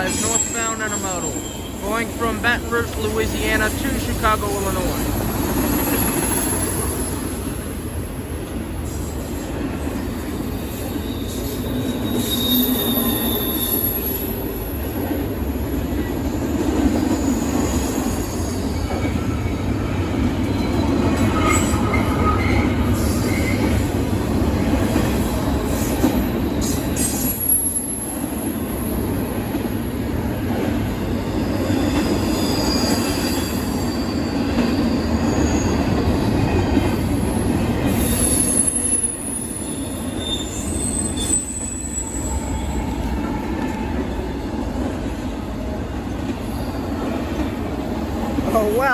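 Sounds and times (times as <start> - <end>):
train wheels rumbling on rail: 0.0 - 48.9
wheel squeal: 9.9 - 14.3, 37.9 - 42.9.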